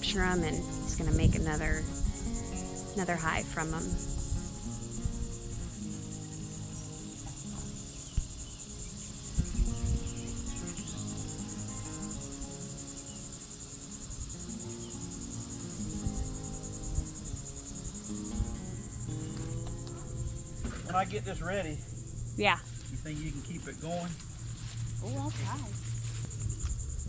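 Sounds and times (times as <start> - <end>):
crickets chirping: 0.0 - 27.0
low humming: 0.0 - 27.0
soft thumps: 7.2 - 8.4, 19.2 - 26.8.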